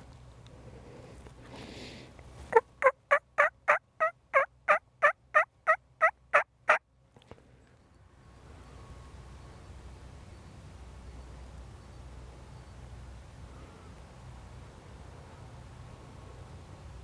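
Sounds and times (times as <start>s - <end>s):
turkey yelping: 2.5s - 6.8s.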